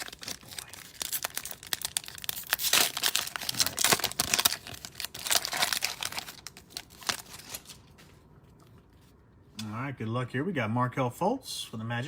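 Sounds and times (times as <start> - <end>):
cellophane wrapper crinkling: 0.0 - 8.0.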